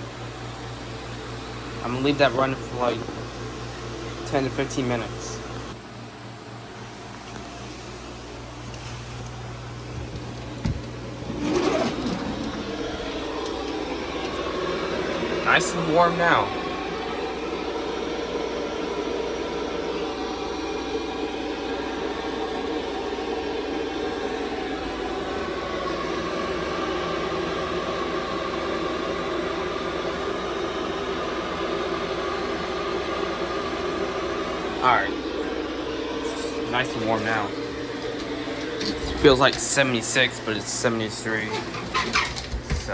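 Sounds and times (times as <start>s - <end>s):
heat pump humming: 0.0s - 42.9s
heat pump knock: 9.9s - 15.3s, 41.5s - 42.9s.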